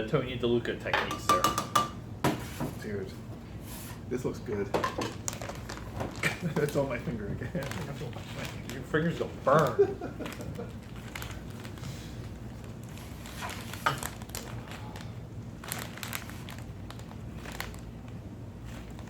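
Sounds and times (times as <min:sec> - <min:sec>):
low room hum: 0:00.0 - 0:19.0
food packaging crinkling: 0:05.0 - 0:19.0.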